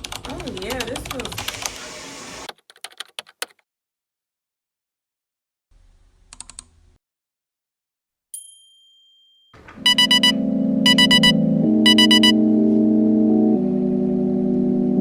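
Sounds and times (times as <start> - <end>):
high ding: 8.4 - 11.3
synthesizer music with ticking beat: 9.8 - 15.0.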